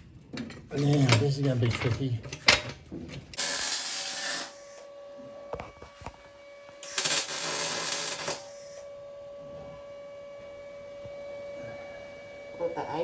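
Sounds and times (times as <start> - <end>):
steady hum: 3.4 - 13.0.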